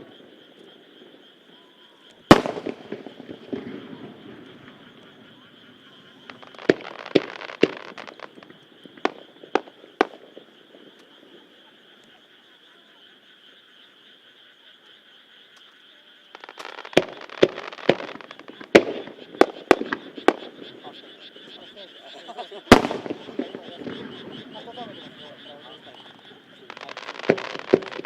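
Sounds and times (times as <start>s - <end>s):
fireworks crackling: 2.1s - 11.3s, 16.3s - 28.0s
fireworks bursting in bangs: 2.3s - 10.5s, 16.4s - 21.8s, 22.7s - 28.0s.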